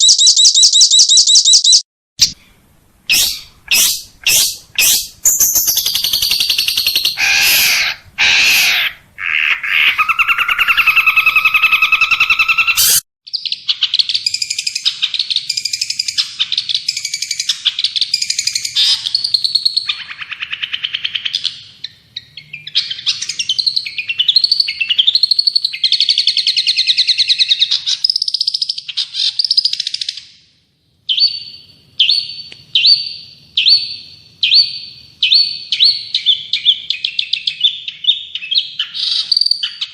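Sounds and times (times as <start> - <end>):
bird short chirps: 0.0 - 2.4
songbird trilling and warbling: 0.0 - 2.4, 3.1 - 30.2.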